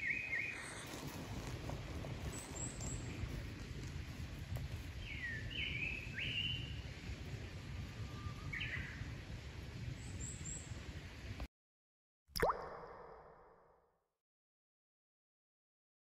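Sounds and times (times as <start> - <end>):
low outdoor rumble: 0.6 - 11.4.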